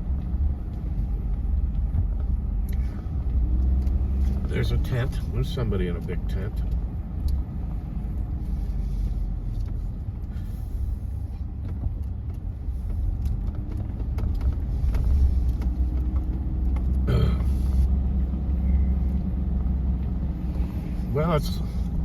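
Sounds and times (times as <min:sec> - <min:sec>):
car engine and tyres rumbling: 0:00.0 - 0:22.0
light ticks: 0:00.1 - 0:04.5, 0:06.0 - 0:08.3.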